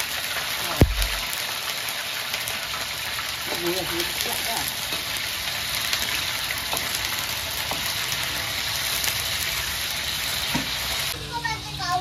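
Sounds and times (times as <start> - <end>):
chicken sizzling in a wok: 0.0 - 12.0.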